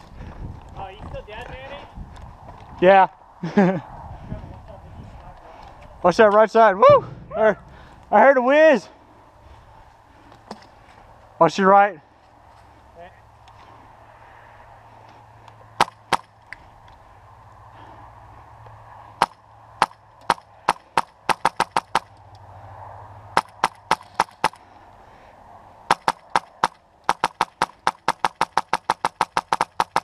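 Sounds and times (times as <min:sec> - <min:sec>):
airsoft gun shots: 0:15.8 - 0:16.3, 0:19.2 - 0:22.1, 0:23.4 - 0:24.6, 0:25.9 - 0:30.0.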